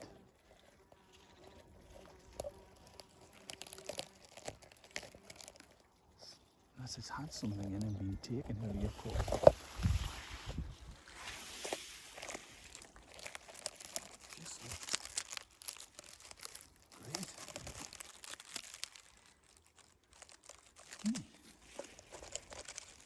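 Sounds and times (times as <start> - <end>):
twigs rustling and crackling: 0.0 - 23.0.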